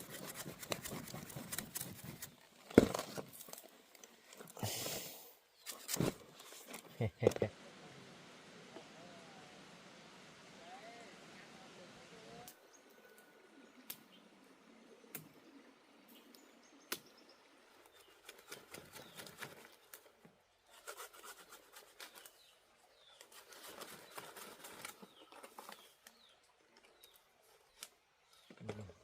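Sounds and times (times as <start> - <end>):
rustling: 23.1 - 26.2.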